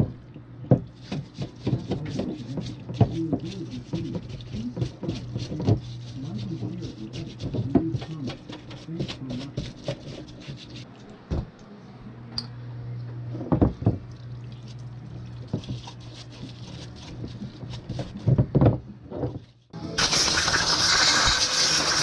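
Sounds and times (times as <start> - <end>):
spraying hiss: 20.0 - 22.0.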